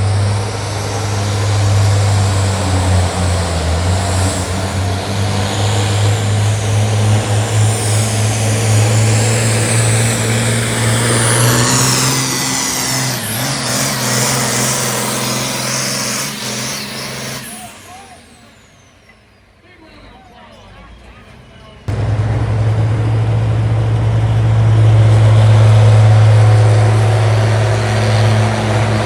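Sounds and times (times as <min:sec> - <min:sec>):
tractor engine under heavy load: 0:00.0 - 0:29.0
high whine: 0:21.9 - 0:29.0.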